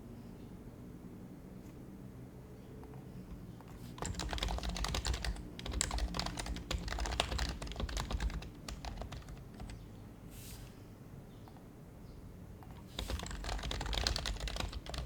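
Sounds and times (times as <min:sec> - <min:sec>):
keyboard typing: 0:03.2 - 0:09.8, 0:12.6 - 0:15.0
soft brushing sound: 0:10.3 - 0:10.8.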